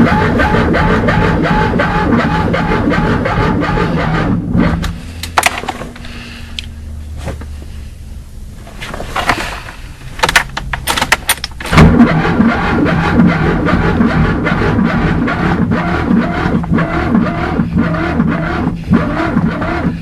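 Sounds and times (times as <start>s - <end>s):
car keys jangling: 10.2s - 11.7s.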